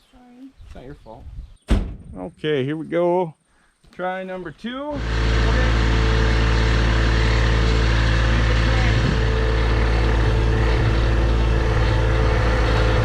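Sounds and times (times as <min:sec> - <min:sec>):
tractor diesel engine running: 0:04.9 - 0:13.0.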